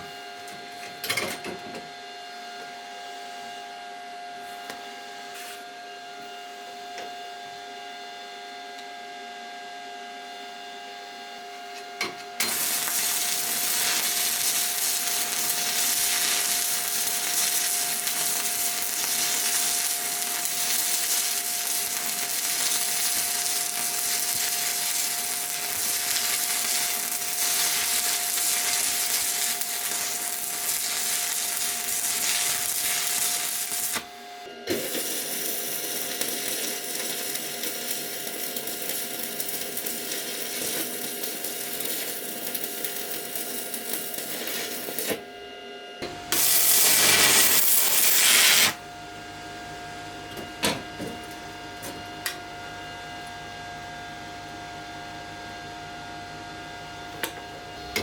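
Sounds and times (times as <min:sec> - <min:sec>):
welding arc crackling: 0:12.4 - 0:34.1, 0:34.7 - 0:45.2, 0:46.3 - 0:48.8.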